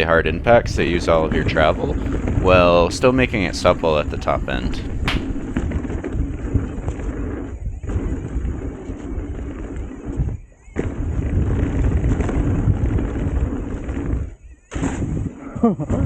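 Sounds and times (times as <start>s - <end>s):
bike tyres rumbling on dirt: 3.2s - 5.6s.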